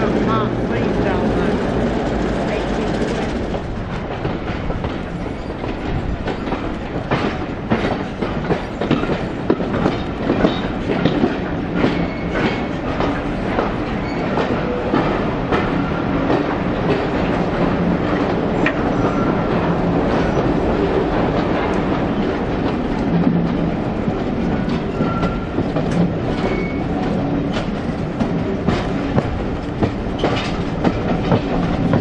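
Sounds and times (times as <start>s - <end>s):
train running rumble: 0.0s - 32.0s
train wheels clattering over joints: 0.0s - 32.0s
wheel squeaks: 14.0s - 14.4s, 26.4s - 27.0s.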